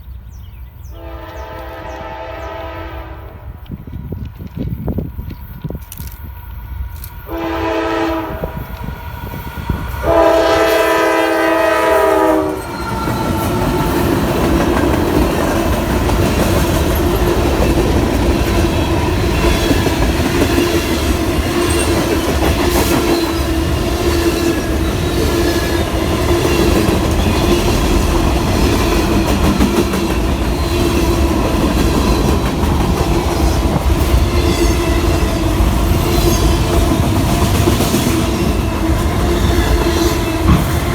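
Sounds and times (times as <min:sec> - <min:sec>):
train passing rumble: 0:00.0 - 0:40.9
locomotive air horn blasts: 0:01.0 - 0:03.5, 0:07.3 - 0:08.7, 0:10.0 - 0:12.8
wheels clacking over rails: 0:36.3 - 0:40.9.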